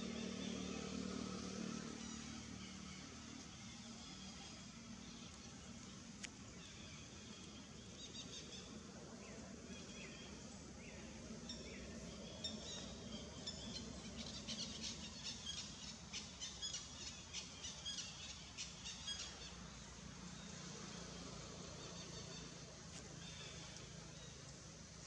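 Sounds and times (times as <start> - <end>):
faint outdoor background noise: 0.0 - 25.0.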